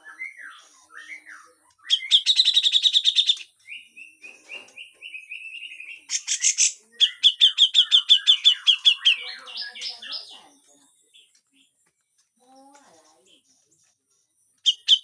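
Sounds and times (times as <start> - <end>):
bird chattering calls: 6.1 - 10.4, 14.7 - 15.0.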